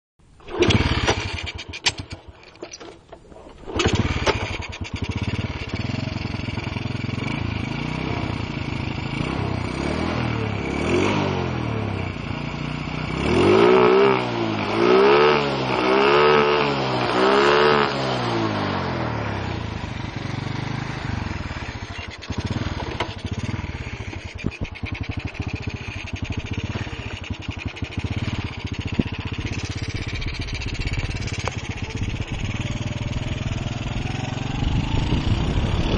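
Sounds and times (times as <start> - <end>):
motorcycle engine idling and revving: 0.2 - 35.9.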